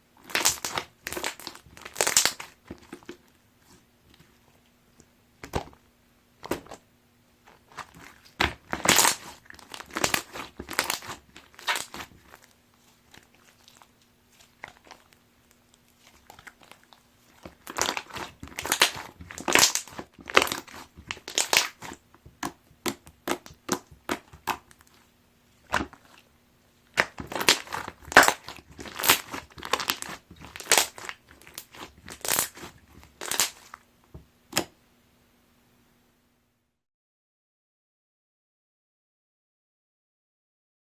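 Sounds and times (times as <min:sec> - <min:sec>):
slime squeezed with wet pops: 0:00.2 - 0:03.1, 0:07.7 - 0:25.0, 0:26.9 - 0:33.8.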